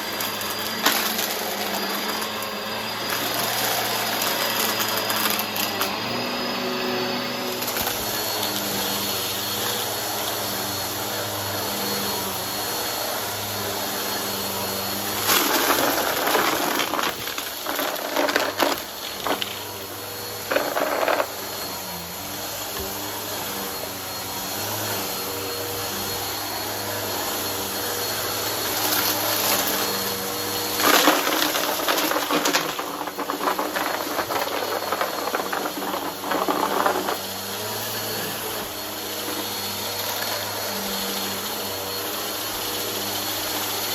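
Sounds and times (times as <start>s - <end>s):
vacuum cleaner running: 0.0s - 43.9s
debris crunching in vacuum: 13.3s - 21.9s, 28.0s - 40.5s.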